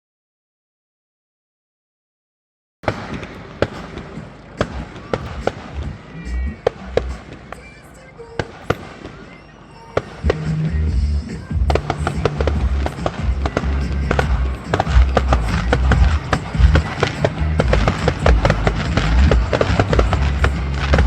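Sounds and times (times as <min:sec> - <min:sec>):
fireworks bangs and crackles: 0:02.8 - 0:21.0
music with pulsing bass: 0:04.6 - 0:07.2, 0:10.2 - 0:21.0.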